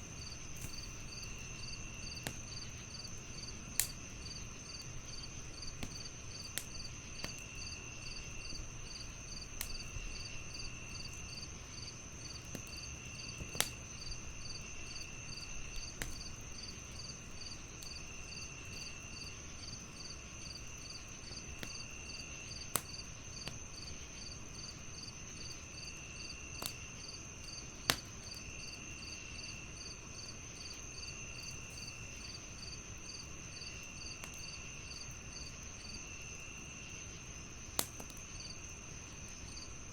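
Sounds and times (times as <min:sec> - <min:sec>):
crickets chirping: 0:00.0 - 0:39.9
insect drone: 0:00.0 - 0:39.9
wood fire crackling: 0:00.0 - 0:39.9
fire pops: 0:00.1 - 0:10.3, 0:12.2 - 0:16.8, 0:21.1 - 0:23.9, 0:26.5 - 0:26.9, 0:27.5 - 0:28.5, 0:30.8 - 0:35.2, 0:37.7 - 0:38.5
lower insect trill: 0:00.1 - 0:27.6.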